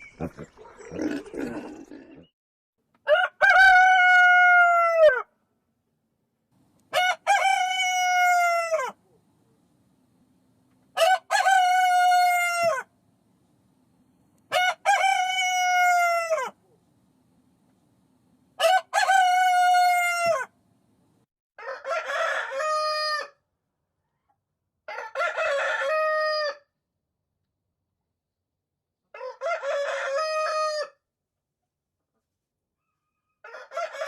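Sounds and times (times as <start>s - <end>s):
rooster crowing: 3.1s - 5.3s, 6.9s - 9.0s, 11.0s - 12.9s, 14.5s - 16.6s, 18.6s - 20.5s, 21.6s - 23.4s, 24.9s - 26.7s, 29.1s - 31.0s, 32.9s - 34.0s.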